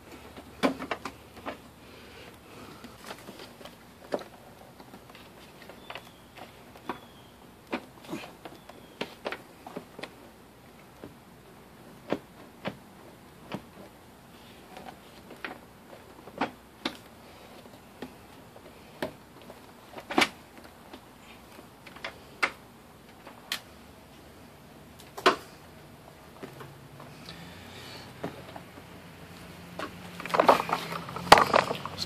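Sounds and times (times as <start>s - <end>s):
plastic clicks and knocks: 29.8s - 32.0s.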